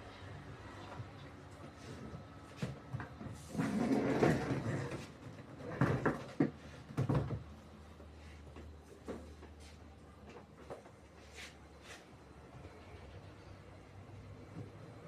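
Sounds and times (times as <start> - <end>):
plastic parts knocking and rattling: 4.2 - 7.5.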